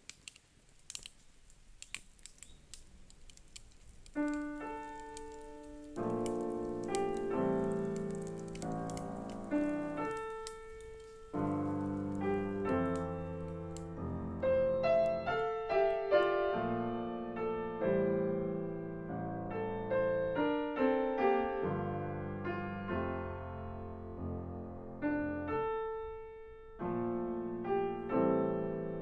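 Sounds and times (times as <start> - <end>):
faint crisp ticks: 0.0 - 13.9
slow solo piano: 3.8 - 29.0.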